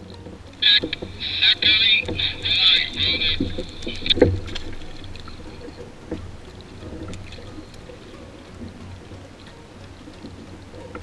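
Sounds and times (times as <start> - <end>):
faint clicks: 0.0 - 11.0
low steady rumble: 0.0 - 11.0
water lapping against boat hull: 0.0 - 11.0.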